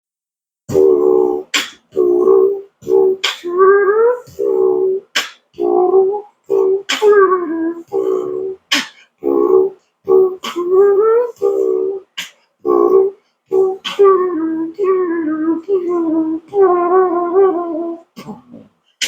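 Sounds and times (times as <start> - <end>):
beatbox boop notes: 0.7 - 13.0.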